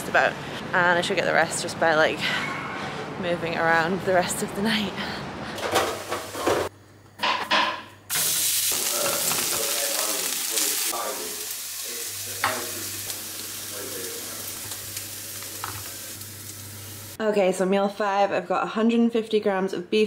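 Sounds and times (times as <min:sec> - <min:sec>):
meat sizzling in a pan: 0:08.1 - 0:17.2.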